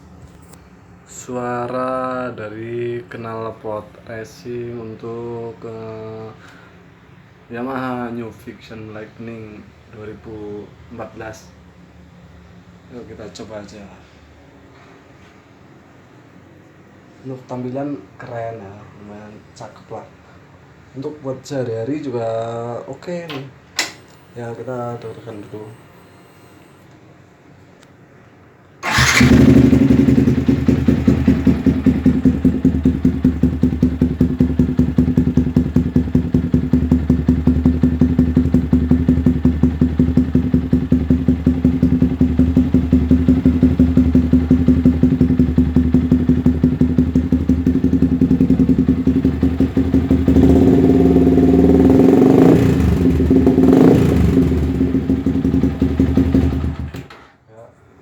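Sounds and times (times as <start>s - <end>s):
motorcycle engine idling and revving: 28.8s - 57.1s.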